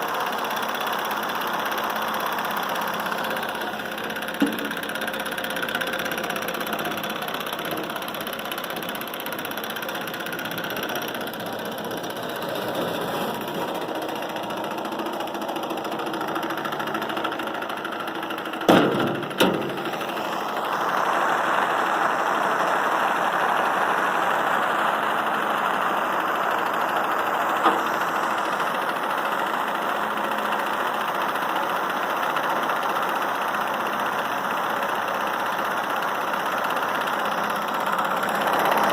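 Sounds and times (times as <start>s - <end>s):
stirling engine running: 2.1s - 29.6s
sharp knocks: 4.4s - 4.8s.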